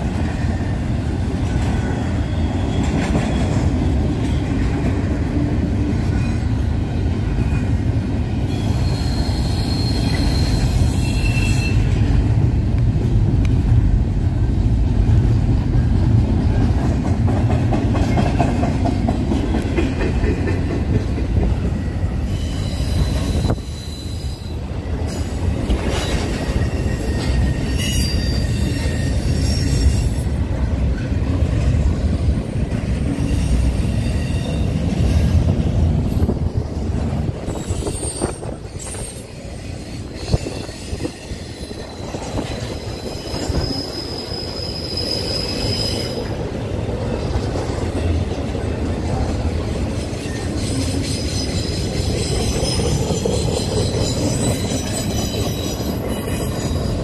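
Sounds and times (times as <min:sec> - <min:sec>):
train wheels rumbling: 0:00.0 - 0:57.0
wheel squeal: 0:08.4 - 0:12.0, 0:22.2 - 0:30.3, 0:37.5 - 0:46.3, 0:50.2 - 0:57.0.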